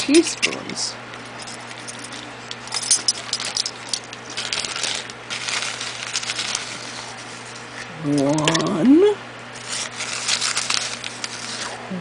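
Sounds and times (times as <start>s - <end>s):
teaspoon clicking and rattling: 1.4s - 6.8s.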